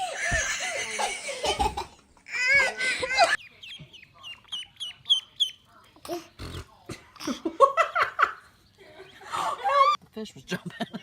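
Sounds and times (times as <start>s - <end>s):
bird chirping: 3.4s - 6.7s
people laughing: 7.2s - 11.0s.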